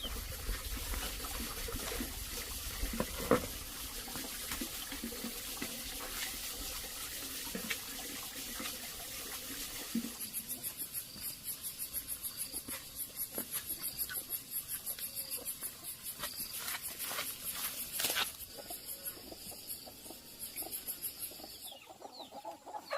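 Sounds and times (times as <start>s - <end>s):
running water rushing: 0.0s - 11.4s
insect chirping: 8.7s - 22.9s.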